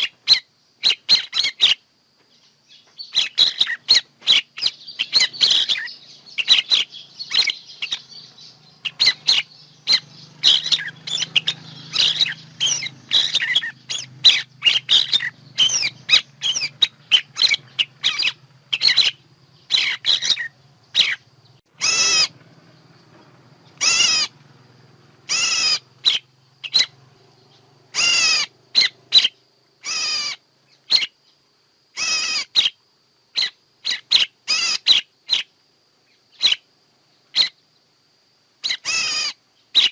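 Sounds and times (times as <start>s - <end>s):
faint low hum: 0.0s - 39.9s
recorded songbird calls: 0.0s - 39.9s.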